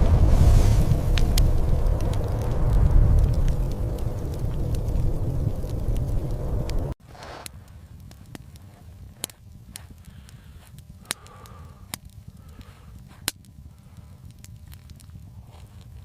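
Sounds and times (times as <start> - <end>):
low rumble: 0.0 - 7.0
sharp snaps: 9.2 - 13.5.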